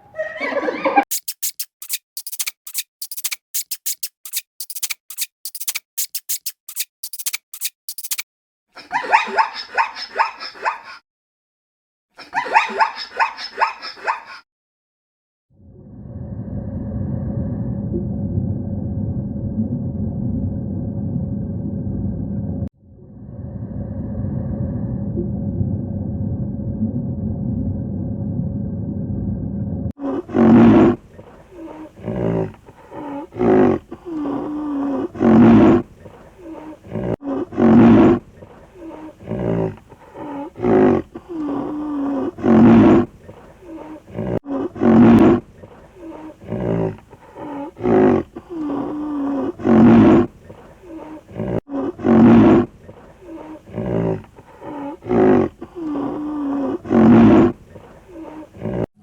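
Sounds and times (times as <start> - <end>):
low steady rumble: 15.8 - 29.9.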